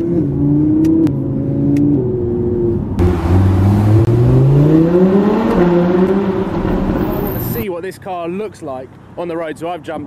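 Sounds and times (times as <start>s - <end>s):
car engine accelerating: 0.0s - 7.6s.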